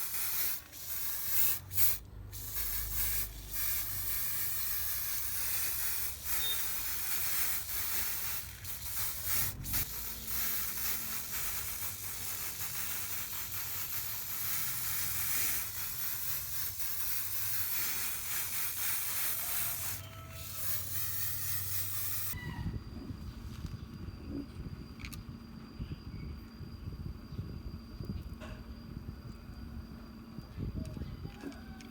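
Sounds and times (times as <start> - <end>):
pressurised spray hissing: 0.0 - 22.4.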